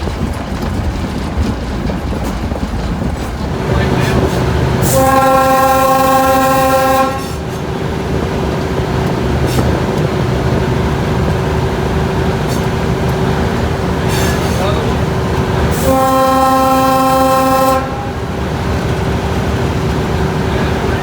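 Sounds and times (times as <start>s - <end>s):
locomotive running hum: 0.0s - 21.0s
locomotive air horn blast: 3.8s - 7.7s, 15.6s - 21.0s.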